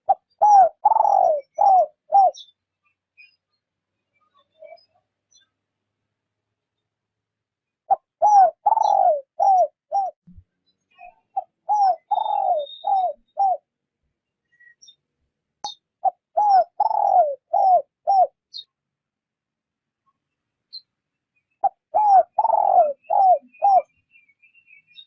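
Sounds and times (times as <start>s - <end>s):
dove cooing: 0.0s - 2.5s, 7.9s - 10.2s, 11.4s - 13.7s, 16.0s - 18.4s, 21.6s - 23.9s
small birds chirping faintly: 0.0s - 25.0s.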